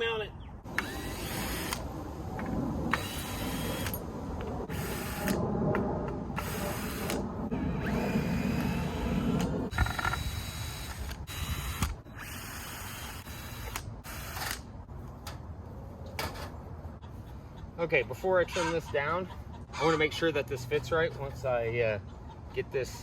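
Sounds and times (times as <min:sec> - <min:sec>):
cordless drill whirring: 0:00.7 - 0:01.9, 0:02.9 - 0:04.0, 0:04.7 - 0:05.4, 0:06.4 - 0:14.6.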